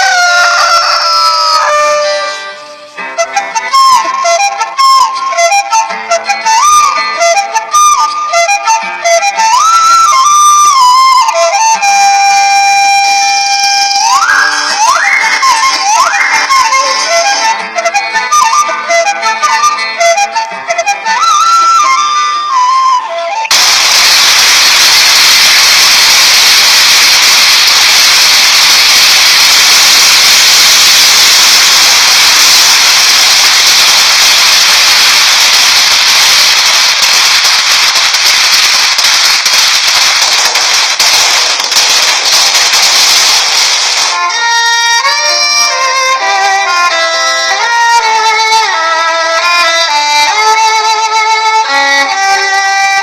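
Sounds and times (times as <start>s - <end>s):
violin music: 0.0s - 23.7s, 44.1s - 53.0s
fireworks crackling and hissing: 12.4s - 18.1s, 23.4s - 53.0s.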